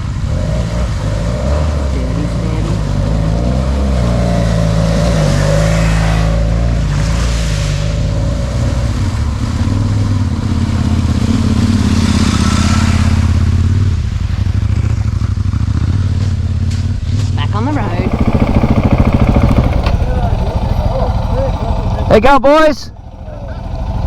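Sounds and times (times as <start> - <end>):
motorcycle engine revving: 0.0 - 6.9, 17.6 - 24.0.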